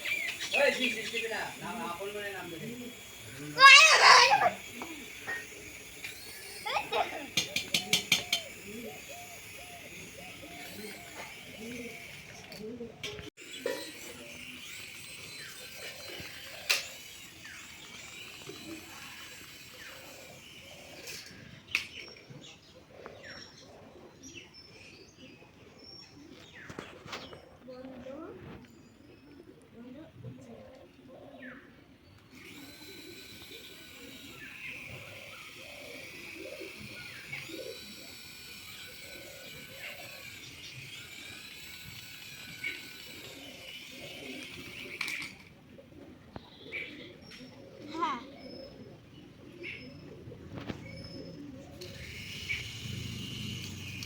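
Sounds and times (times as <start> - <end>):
small motor whine: 0.0 - 24.4, 32.2 - 45.6, 46.4 - 54.0
birds chirping and cooing: 0.0 - 54.0
sharp click: 7.3 - 8.5.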